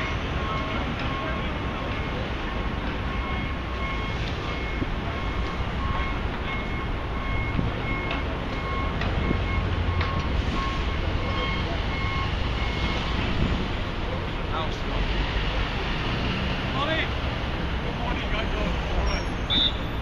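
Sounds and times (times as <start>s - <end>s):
backup alarm beeping: 0.0s - 2.2s, 3.0s - 13.1s
city traffic rumble: 0.0s - 20.0s.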